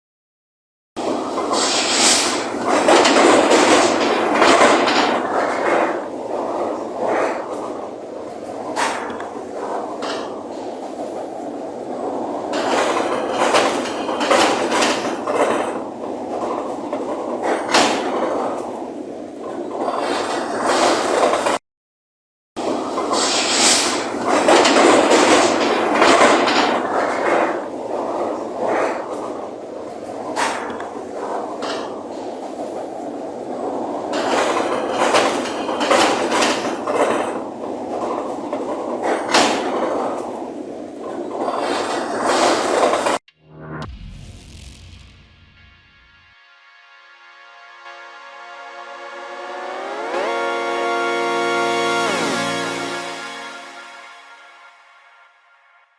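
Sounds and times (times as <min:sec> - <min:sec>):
strong wind gusting: 0:01.0 - 0:21.3
sharp knock: 0:43.3 - 0:46.3.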